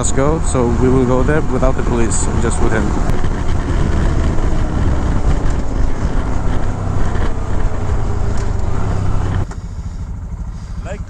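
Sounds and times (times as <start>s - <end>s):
wind rushing over microphone: 0.0s - 9.5s
motorcycle engine running: 0.0s - 11.0s.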